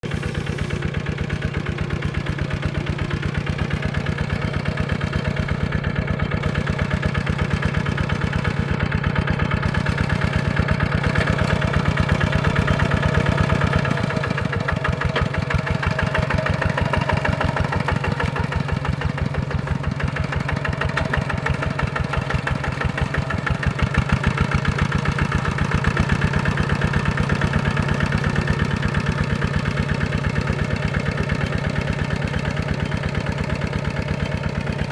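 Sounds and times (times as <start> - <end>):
diesel tractor engine chugging: 0.0 - 34.9.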